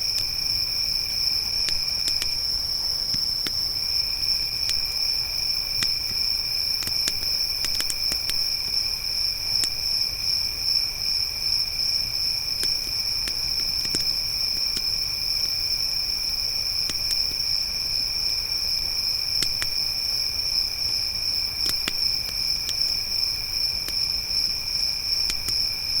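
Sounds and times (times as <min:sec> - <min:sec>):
crickets chirping: 0:00.0 - 0:26.0
campfire crackling and popping: 0:00.1 - 0:08.8, 0:09.5 - 0:09.9, 0:12.5 - 0:15.7, 0:16.7 - 0:17.6, 0:19.3 - 0:26.0.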